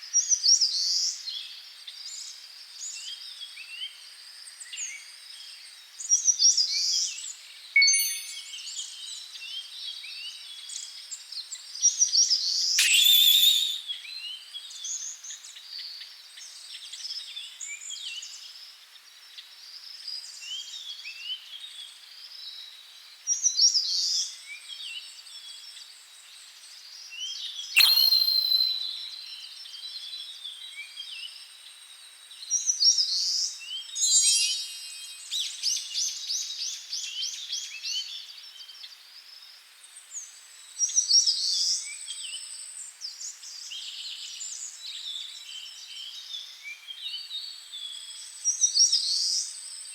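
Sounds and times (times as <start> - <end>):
sharp bird call: 12.8 - 13.9, 27.8 - 29.0
small birds chirping: 12.8 - 13.9, 27.8 - 29.1.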